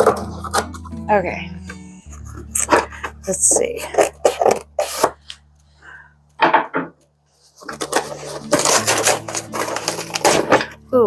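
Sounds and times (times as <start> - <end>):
parts rattling and clattering: 6.4 - 10.8.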